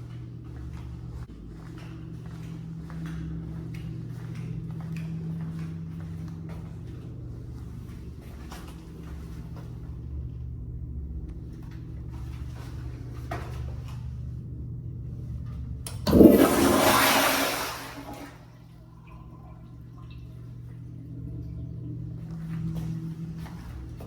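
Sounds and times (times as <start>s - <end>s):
low hum: 0.0s - 24.0s
toilet flushing: 15.9s - 20.8s.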